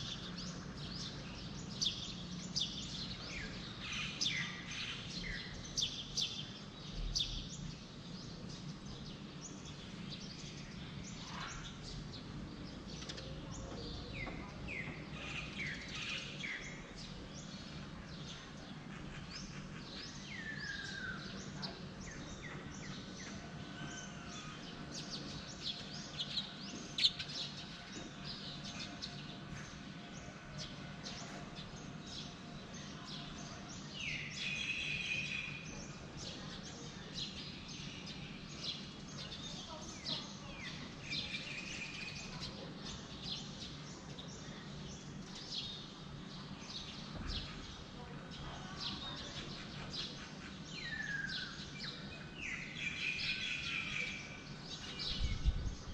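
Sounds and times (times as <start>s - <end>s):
birds chirping and calling: 0.0s - 45.9s, 46.7s - 55.9s
steady low background hum: 0.0s - 55.9s.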